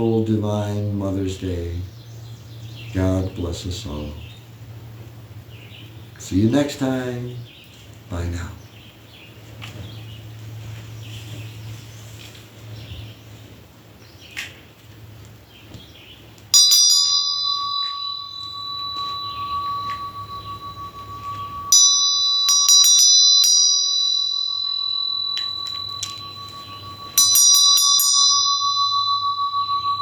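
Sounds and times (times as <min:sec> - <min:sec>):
low steady hum: 0:00.0 - 0:30.0
small metal bell ringing: 0:16.5 - 0:30.0.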